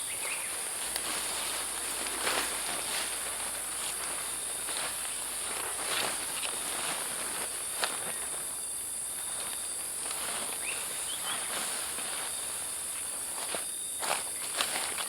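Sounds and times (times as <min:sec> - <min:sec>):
forest insects droning: 0:00.0 - 0:15.0
soft crackles: 0:00.0 - 0:15.0
faint chirps: 0:09.1 - 0:12.6.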